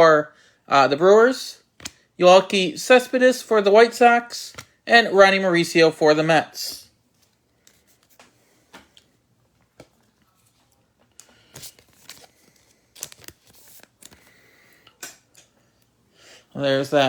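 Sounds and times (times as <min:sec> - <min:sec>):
trading cards handled: 0:01.8 - 0:02.0, 0:04.4 - 0:04.8, 0:07.1 - 0:08.9, 0:09.5 - 0:15.3.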